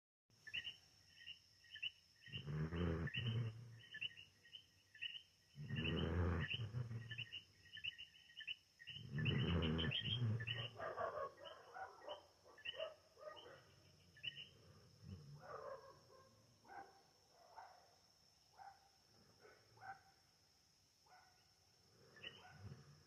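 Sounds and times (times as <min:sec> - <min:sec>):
small birds chirping: 0:00.4 - 0:17.9, 0:21.1 - 0:23.0
dog snoring: 0:02.4 - 0:03.7, 0:05.6 - 0:07.1, 0:09.1 - 0:10.7.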